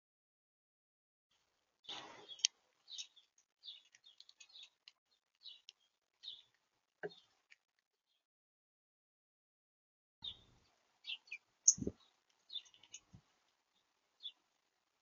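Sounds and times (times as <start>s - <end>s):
small birds chirping: 1.8s - 8.2s, 10.2s - 14.6s.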